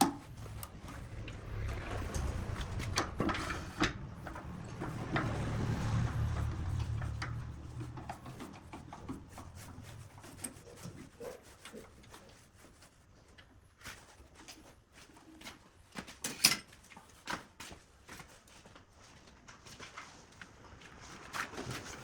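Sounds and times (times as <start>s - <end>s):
objects knocking and tapping: 0.0s - 9.3s
rubbing and scraping: 0.0s - 15.6s
low rumble: 0.3s - 8.4s.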